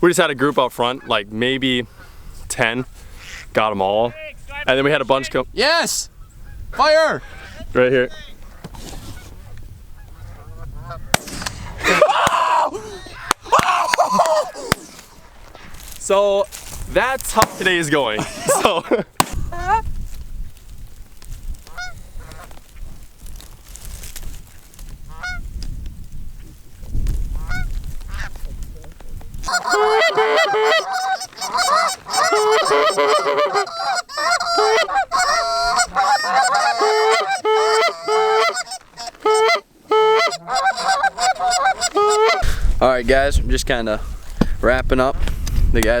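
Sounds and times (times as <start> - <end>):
geese honking: 25.1 - 25.4, 29.5 - 42.5.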